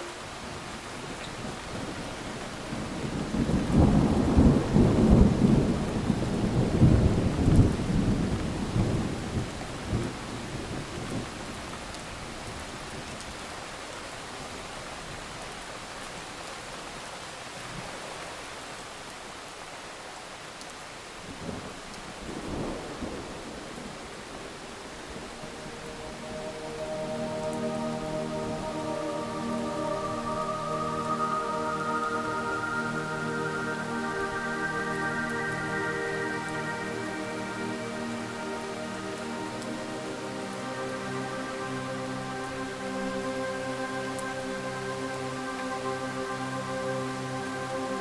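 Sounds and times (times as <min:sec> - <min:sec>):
steady rushing hiss: 0:22.2 - 0:48.0.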